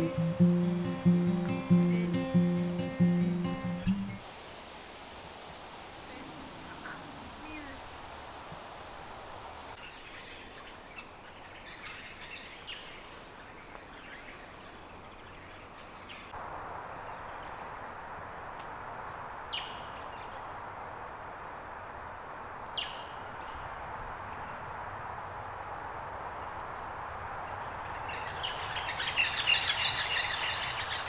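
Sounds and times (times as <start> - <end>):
birds chirping: 0.0 - 4.2, 27.5 - 31.0
steady hiss: 0.0 - 15.0.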